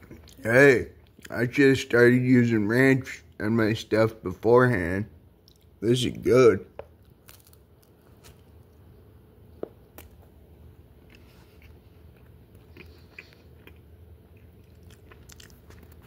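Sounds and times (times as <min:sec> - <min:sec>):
faint chewing: 0:00.0 - 0:00.4, 0:01.0 - 0:01.4, 0:05.4 - 0:05.8, 0:10.9 - 0:16.0
low room hum: 0:00.0 - 0:16.0.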